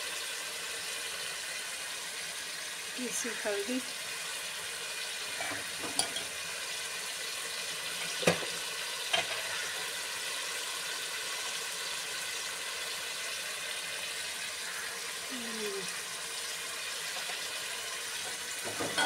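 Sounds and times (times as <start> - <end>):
onions sizzling in a pot: 0.0 - 19.0
metal ladle clinking against pot: 5.4 - 6.3.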